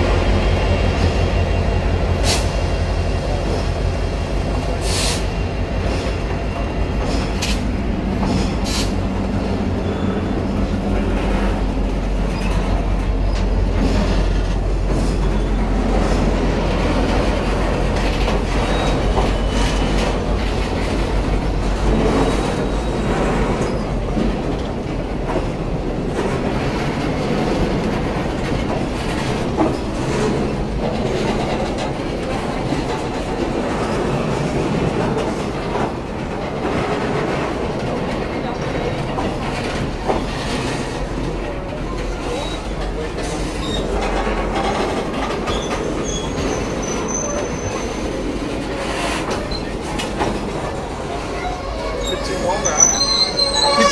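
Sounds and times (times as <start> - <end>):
train rumbling along track: 0.0 - 53.9
faint wheel squeal: 18.5 - 20.2, 45.5 - 48.2, 51.2 - 53.9.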